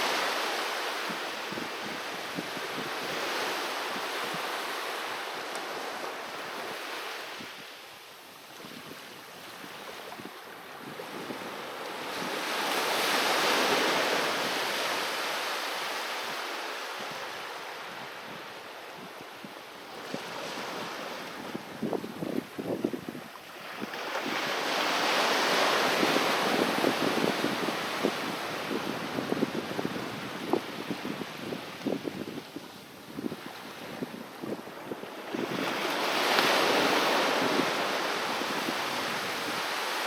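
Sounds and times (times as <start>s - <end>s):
sea waves breaking on shore: 0.0s - 40.0s.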